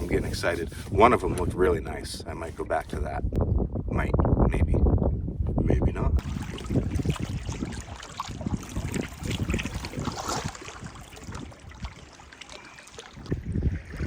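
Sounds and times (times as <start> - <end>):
wind gusting on microphone: 0.0 - 14.0
paddle strokes in water: 6.2 - 14.0
water trickling off paddle: 6.2 - 14.0.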